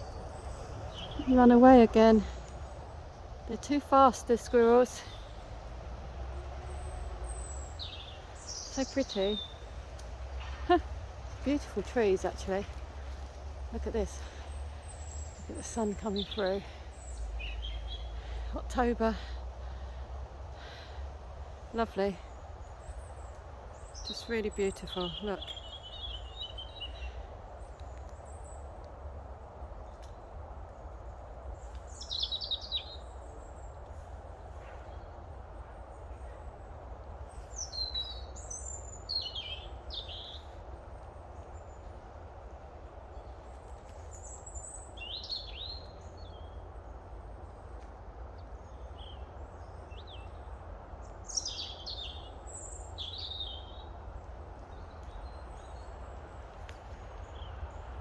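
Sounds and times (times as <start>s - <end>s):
small birds chirping: 0.0s - 42.2s, 42.9s - 58.0s
low background rumble: 0.0s - 58.0s.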